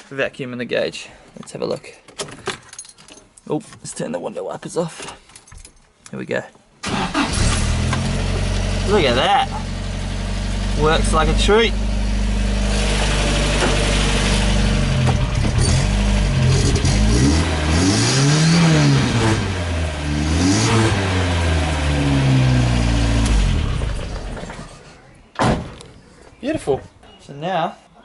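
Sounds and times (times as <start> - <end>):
engine idling and revving: 7.1 - 24.9.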